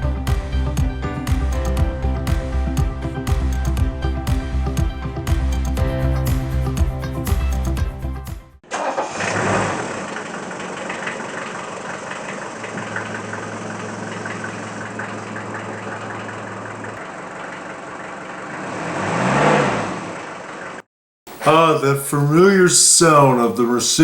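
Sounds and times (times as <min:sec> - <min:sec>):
music: 0:00.0 - 0:08.6
diesel engine starting and idling: 0:00.0 - 0:20.8
engine revving: 0:08.7 - 0:11.5, 0:17.9 - 0:20.8.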